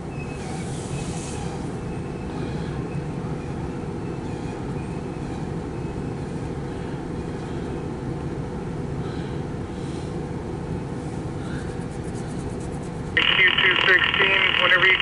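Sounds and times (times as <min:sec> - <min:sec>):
freight train rumbling past: 0:00.0 - 0:11.4.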